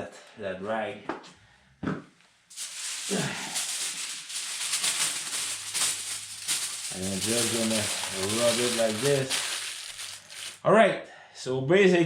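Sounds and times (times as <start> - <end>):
cloth rag rustling and rubbing: 2.5 - 10.6.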